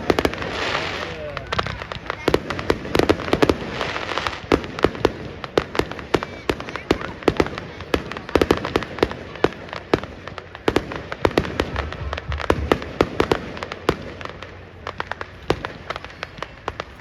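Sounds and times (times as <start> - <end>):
fireworks bangs and crackles: 0.0 - 17.0
low rumble: 11.5 - 13.9.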